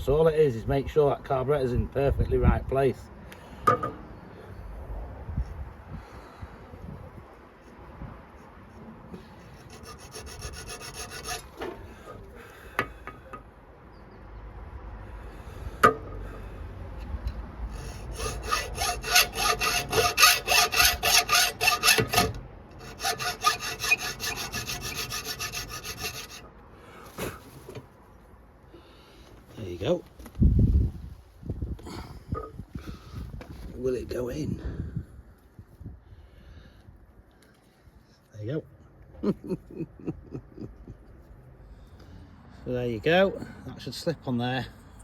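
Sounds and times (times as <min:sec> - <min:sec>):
file sawing on metal: 0:09.2 - 0:12.2, 0:17.7 - 0:26.5.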